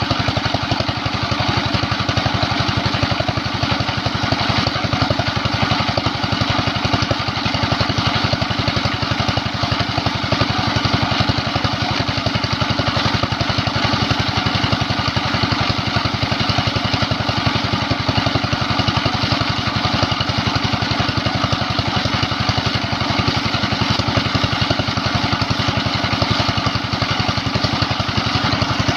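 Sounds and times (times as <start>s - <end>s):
diesel pump engine chugging: 0.0s - 28.9s.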